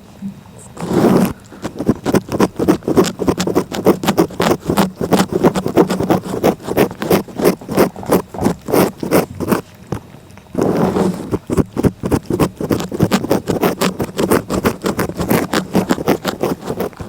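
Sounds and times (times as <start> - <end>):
cat licking: 0.6 - 17.0.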